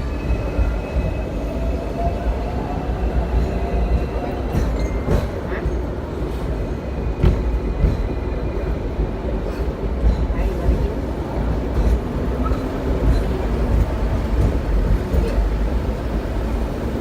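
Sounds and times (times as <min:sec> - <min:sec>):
tram wheels rumbling on track: 0:00.0 - 0:17.0.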